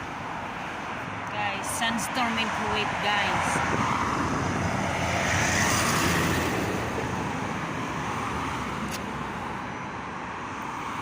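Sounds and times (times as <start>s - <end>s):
strong wind blowing: 1.1s - 8.5s
wind buffeting microphone: 2.3s - 8.3s.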